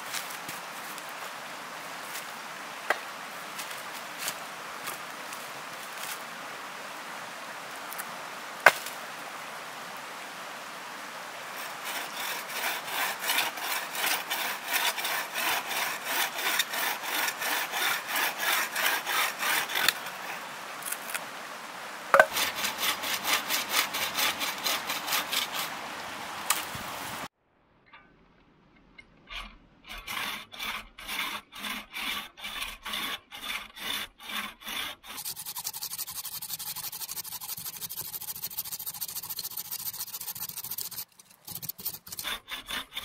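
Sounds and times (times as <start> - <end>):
hand saw cutting wood: 11.5 - 20.5, 22.2 - 25.8, 29.3 - 43.0
sharp knocks: 22.1 - 22.4.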